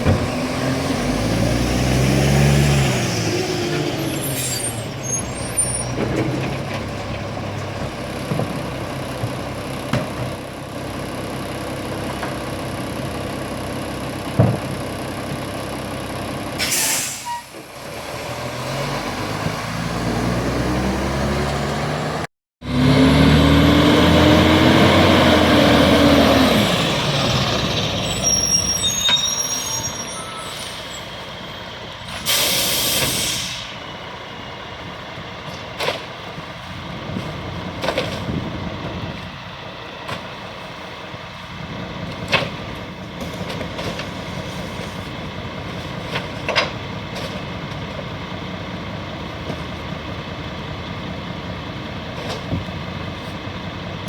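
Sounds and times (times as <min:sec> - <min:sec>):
garbage truck engine revving: 0:00.0 - 0:15.0, 0:15.6 - 0:54.0
air brakes hissing: 0:16.6 - 0:17.6, 0:32.1 - 0:33.8.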